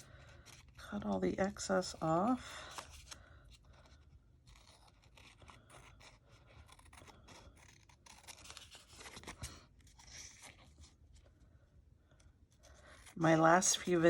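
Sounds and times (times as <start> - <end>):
paper rustling: 0.0 - 11.4
scissors snipping paper: 2.8 - 9.4.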